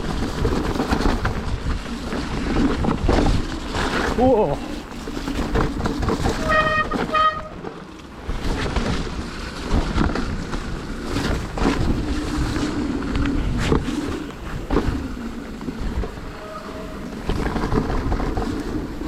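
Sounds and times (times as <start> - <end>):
bike rattling over bumps: 0.0 - 19.0
tyres on wet dirt: 0.0 - 19.0
disc brakes honking: 6.4 - 7.7
wind on microphone: 8.2 - 19.0.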